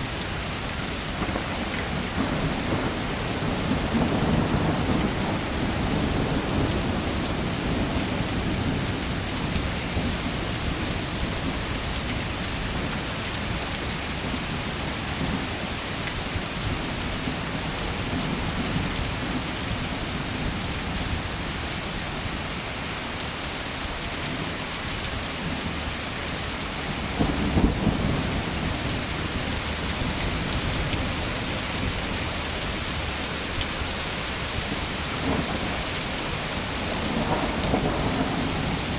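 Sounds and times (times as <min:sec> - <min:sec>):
heavy rain hissing: 0:00.0 - 0:38.9
low rolling thunder: 0:01.2 - 0:11.7, 0:26.7 - 0:38.9.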